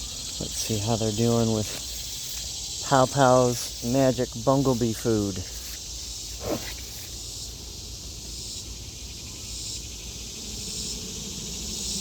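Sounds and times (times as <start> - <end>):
honey bees buzzing: 0.0 - 8.2
high insect trill: 0.0 - 12.0.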